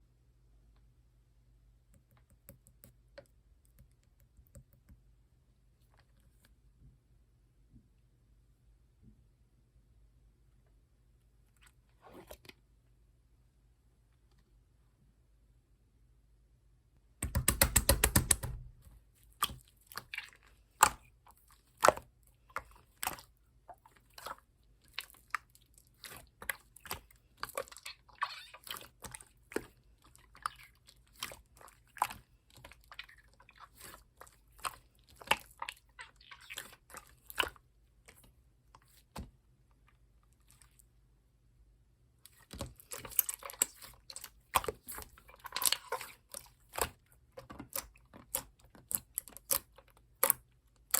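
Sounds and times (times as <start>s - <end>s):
slime squeezed with wet clicks: 42.3s - 50.9s.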